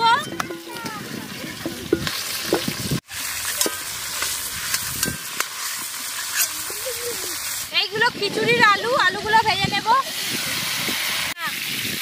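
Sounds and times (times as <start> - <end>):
vegetables sizzling in hot oil: 0.5 - 12.0
metal ladle scraping a pan: 1.6 - 7.7.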